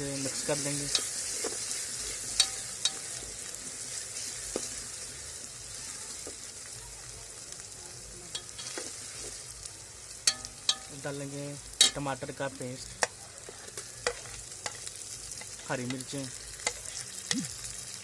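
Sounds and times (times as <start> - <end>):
onions sizzling in oil: 0.0 - 18.0
metal spoon stirring in pot: 0.1 - 4.7, 8.3 - 9.4, 10.2 - 11.0, 11.7 - 12.2, 12.8 - 17.7
spoon clinking against pot: 10.3 - 10.9.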